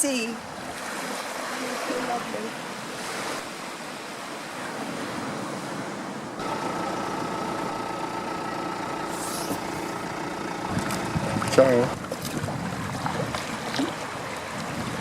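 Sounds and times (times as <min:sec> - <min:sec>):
wind and surf noise: 0:00.0 - 0:06.5, 0:09.2 - 0:15.0
mechanical hum with held tones: 0:06.4 - 0:12.1.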